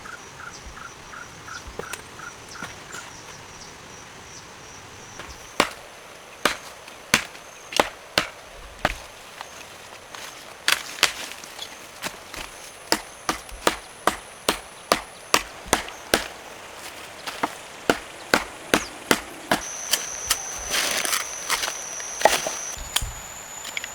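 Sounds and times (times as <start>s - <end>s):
blade chopping wood: 5.2s - 9.5s, 10.6s - 11.4s, 12.0s - 23.1s.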